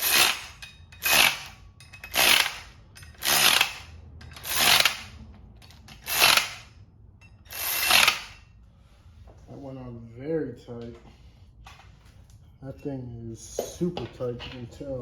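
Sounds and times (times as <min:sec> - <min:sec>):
electric ratchet whirring: 0:00.0 - 0:05.2, 0:05.9 - 0:06.7, 0:07.5 - 0:08.4.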